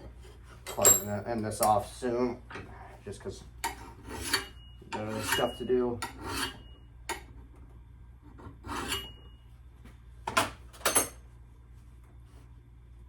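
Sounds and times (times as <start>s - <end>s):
metal file scraping axe head: 3.6s - 7.2s, 8.3s - 9.2s.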